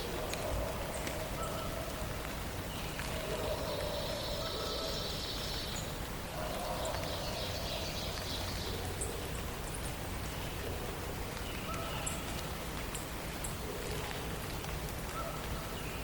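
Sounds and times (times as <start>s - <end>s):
steady background hiss: 0.0s - 16.0s
birds singing: 2.6s - 13.6s.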